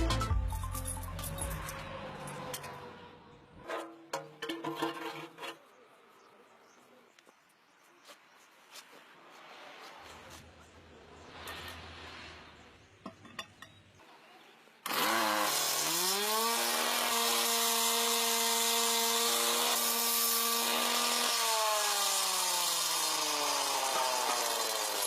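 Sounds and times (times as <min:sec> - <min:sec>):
saw hissing cutting road surface: 0:09.4 - 0:13.0, 0:14.8 - 0:25.0
road-cutting machine whine: 0:14.9 - 0:25.0.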